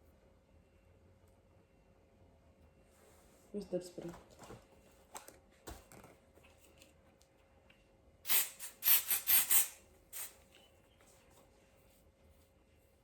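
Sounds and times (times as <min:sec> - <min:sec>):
spray bottle spritzing: 0:08.3 - 0:10.4.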